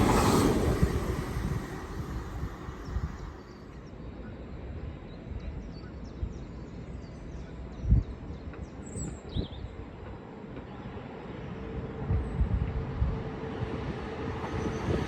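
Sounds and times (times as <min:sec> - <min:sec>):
train rumbling: 0:00.0 - 0:04.0, 0:08.4 - 0:15.0.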